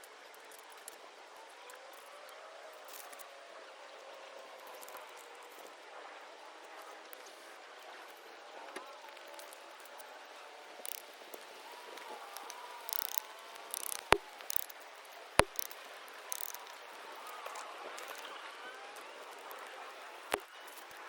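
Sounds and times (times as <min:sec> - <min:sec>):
twig fire crackling: 0:10.7 - 0:18.3.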